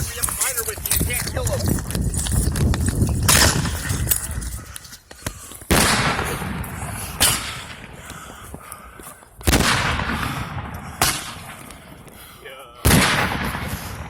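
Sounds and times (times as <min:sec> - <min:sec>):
fireworks bangs: 0:05.7 - 0:08.0, 0:09.4 - 0:12.1, 0:12.8 - 0:14.0.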